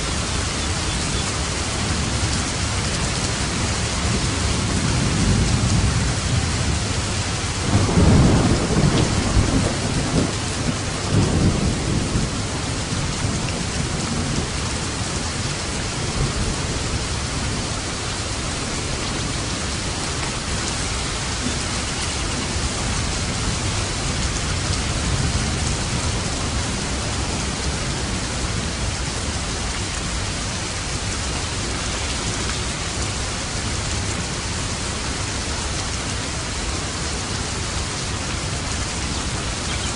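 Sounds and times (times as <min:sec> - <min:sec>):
rain falling: 0:00.0 - 0:39.9
thunder rumbling: 0:00.1 - 0:35.0.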